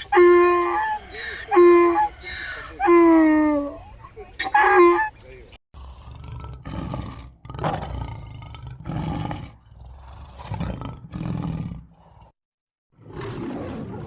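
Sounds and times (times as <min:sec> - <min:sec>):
large animal roaring: 0:05.8 - 0:12.4.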